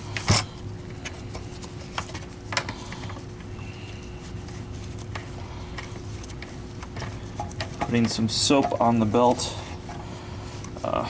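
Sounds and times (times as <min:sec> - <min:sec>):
steady low hum: 0:00.0 - 0:11.0
hard knocks and clicks of parts: 0:06.8 - 0:08.9.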